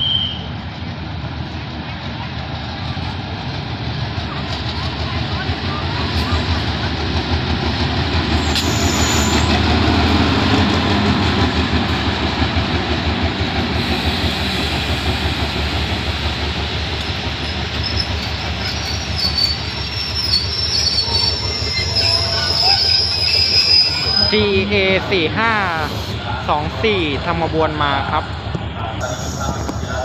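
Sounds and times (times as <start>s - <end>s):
wheels rumbling on rails: 0.6s - 25.1s
wheel squeal: 8.4s - 9.6s, 17.4s - 24.6s
locomotive engine drone: 28.0s - 30.0s.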